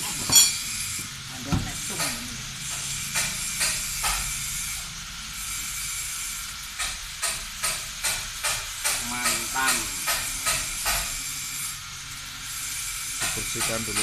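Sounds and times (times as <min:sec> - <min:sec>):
steady hiss: 0:00.0 - 0:14.0
sharp ringing metal clank: 0:00.3 - 0:00.7.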